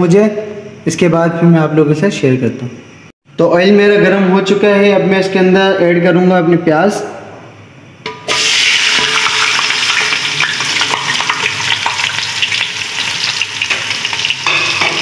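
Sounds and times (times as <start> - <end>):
onions sizzling in hot oil: 8.3 - 15.0.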